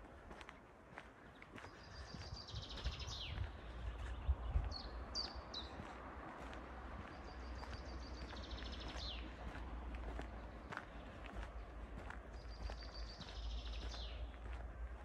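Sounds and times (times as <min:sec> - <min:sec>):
footsteps on gravel: 0:00.0 - 0:15.0
songbird trilling and chirping: 0:01.7 - 0:05.9, 0:12.4 - 0:14.4.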